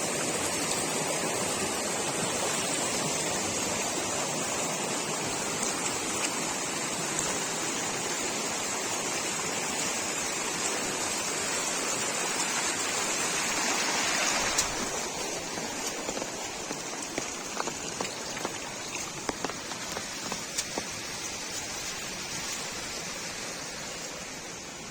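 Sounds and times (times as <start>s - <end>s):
heavy rain falling: 0.0s - 24.9s
raindrops ticking: 14.5s - 22.7s.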